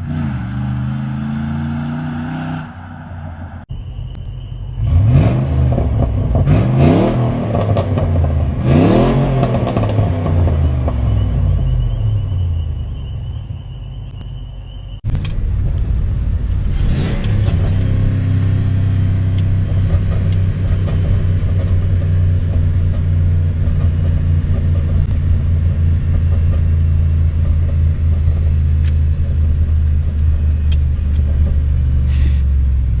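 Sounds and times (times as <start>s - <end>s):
deep engine idle rumble: 11.0s - 33.0s.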